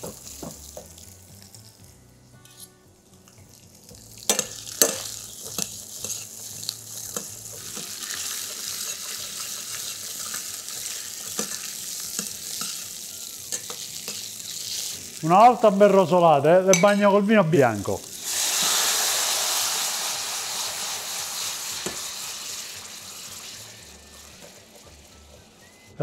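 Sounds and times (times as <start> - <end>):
fish frying in oil sizzle: 0.0 - 1.9, 3.4 - 15.9, 17.7 - 25.8
spoon clinking and scraping: 4.3 - 12.9, 13.5 - 15.0.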